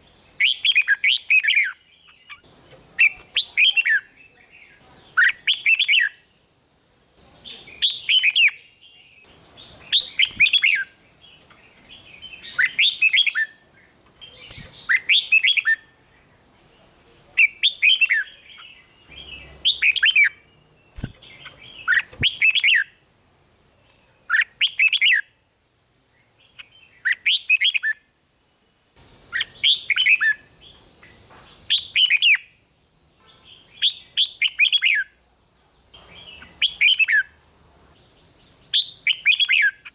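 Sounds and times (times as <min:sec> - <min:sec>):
bird singing whistled phrases: 0:03.0 - 0:06.2, 0:07.5 - 0:10.9.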